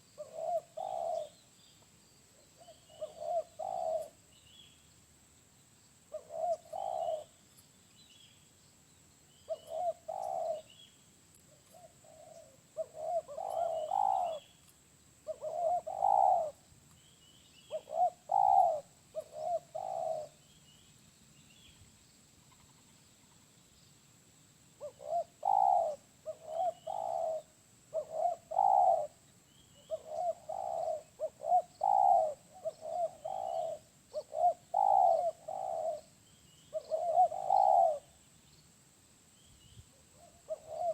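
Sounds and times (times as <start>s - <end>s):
dove cooing: 0.0s - 1.4s, 2.4s - 4.2s, 6.1s - 7.4s, 9.4s - 10.8s, 11.6s - 14.6s, 15.2s - 16.7s, 17.6s - 20.4s, 24.8s - 38.2s, 39.9s - 40.9s.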